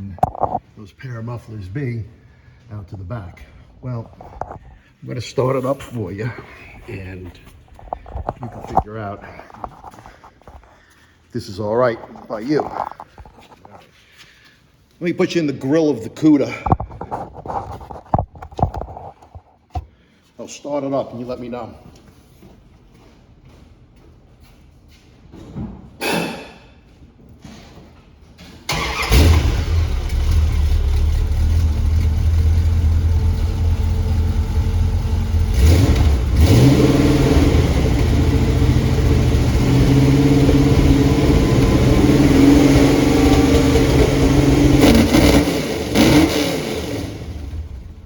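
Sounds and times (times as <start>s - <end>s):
car engine starting: 28.7s - 48.0s
engine exhaust note and revving: 28.7s - 48.0s.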